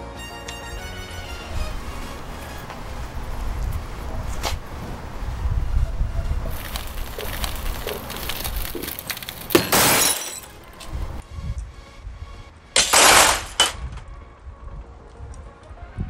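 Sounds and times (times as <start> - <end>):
glass cracking and breaking: 6.5 - 10.9, 12.8 - 13.8.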